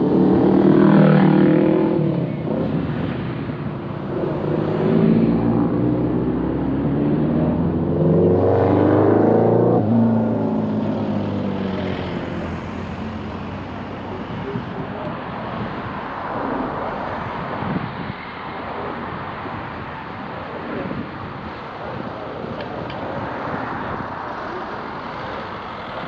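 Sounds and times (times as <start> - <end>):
road and tyre noise: 0.0 - 26.0
car engine accelerating: 4.1 - 15.2.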